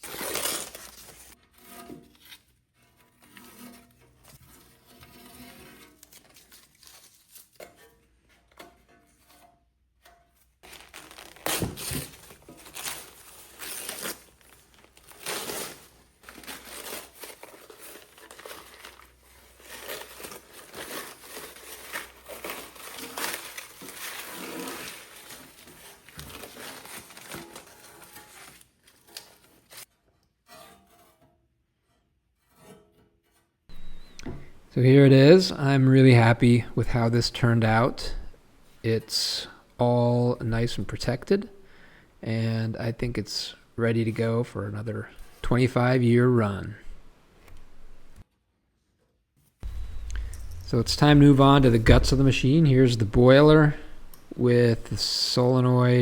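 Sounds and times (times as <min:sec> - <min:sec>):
paper crinkling and tearing: 0:00.0 - 0:02.5, 0:04.3 - 0:07.7, 0:10.6 - 0:29.9, 0:49.6 - 0:56.0
sharp knock: 0:49.6 - 0:54.3.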